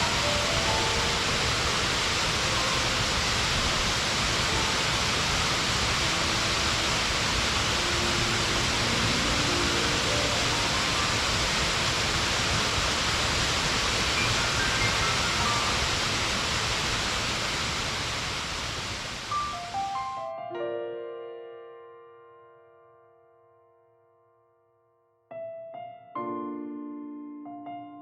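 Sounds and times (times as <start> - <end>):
soft melodic background music: 0.0 - 12.3, 14.1 - 16.4, 19.3 - 28.0
waterfall rushing: 0.0 - 20.0.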